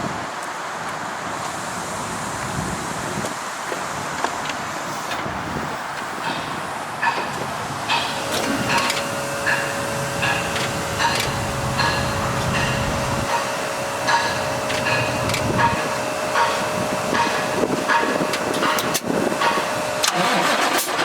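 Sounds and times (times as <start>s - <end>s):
steady tone: 6.3s - 18.2s.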